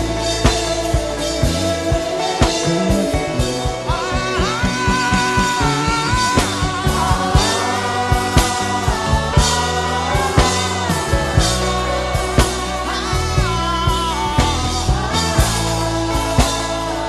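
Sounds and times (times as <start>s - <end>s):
steady drum beat: 0.0s - 17.0s
sustained bass notes: 0.0s - 17.0s.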